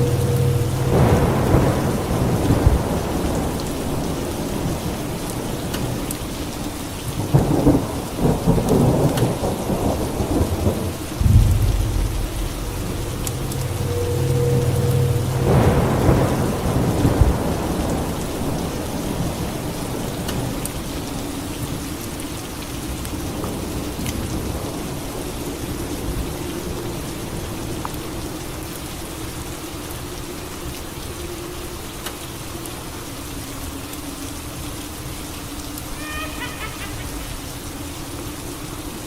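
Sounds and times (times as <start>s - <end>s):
thunder clap and rumble: 0.0s - 6.1s, 7.2s - 20.8s
steady rain falling: 0.0s - 39.0s.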